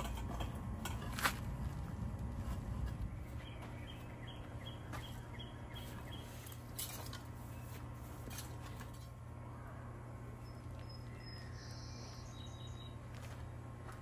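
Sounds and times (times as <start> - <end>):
steady low hum: 0.0 - 14.0
small bird chirping: 10.4 - 13.0.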